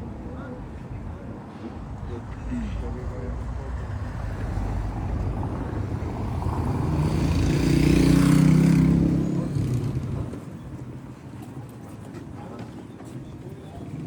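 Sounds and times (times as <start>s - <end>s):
vehicle engine passing by: 2.2s - 10.4s.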